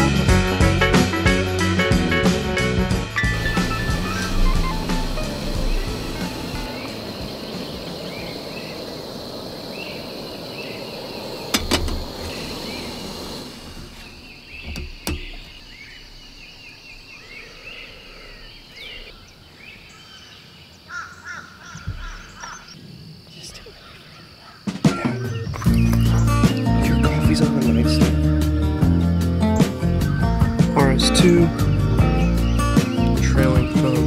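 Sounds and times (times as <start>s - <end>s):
camp stove burner hissing: 3.2s - 19.2s
bird calling: 3.2s - 28.0s.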